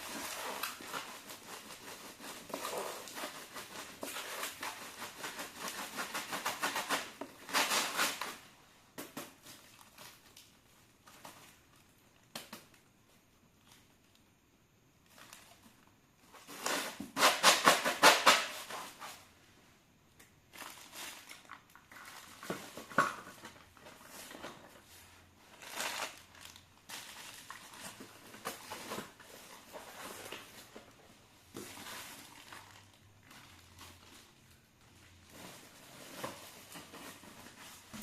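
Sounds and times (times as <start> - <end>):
packaging rustling and crinkling: 0.0 - 8.4, 20.5 - 38.0.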